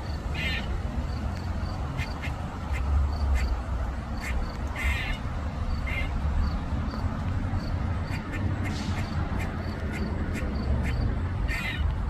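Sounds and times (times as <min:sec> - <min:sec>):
squirrel rasping distress calls: 0:00.0 - 0:00.8, 0:01.8 - 0:03.6, 0:04.2 - 0:06.2, 0:08.0 - 0:12.0.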